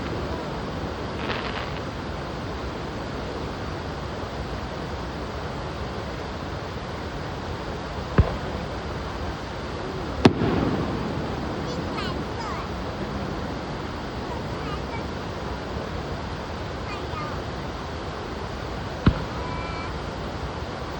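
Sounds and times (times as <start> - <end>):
firework bangs: 0.0 - 3.3, 7.9 - 20.6
steady rushing noise: 0.0 - 20.9.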